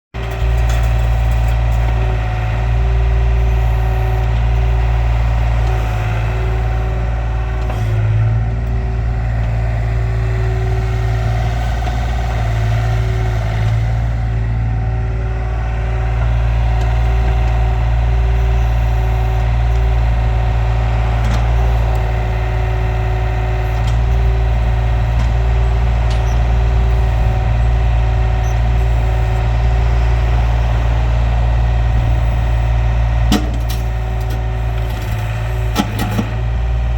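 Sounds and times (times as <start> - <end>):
excavator diesel engine running: 0.2 - 36.9.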